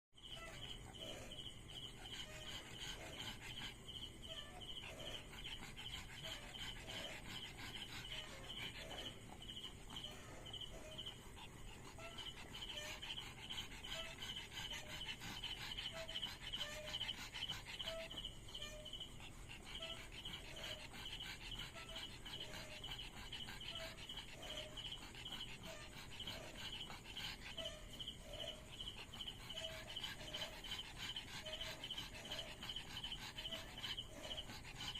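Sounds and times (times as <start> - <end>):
insects trilling: 0.2 - 34.9.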